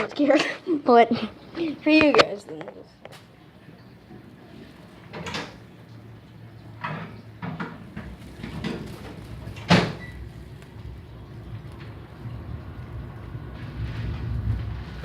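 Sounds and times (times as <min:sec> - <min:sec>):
low rumble: 0:08.0 - 0:15.0.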